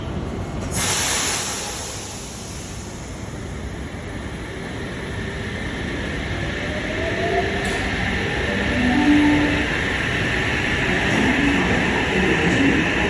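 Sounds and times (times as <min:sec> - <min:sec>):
train rumbling: 0:00.0 - 0:13.0
sharp hiss of air: 0:00.7 - 0:03.4.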